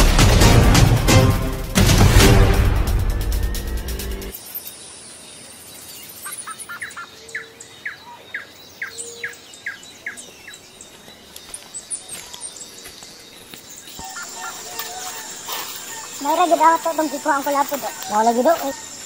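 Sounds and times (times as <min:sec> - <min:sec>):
faint high bird chirps: 0:04.4 - 0:19.0.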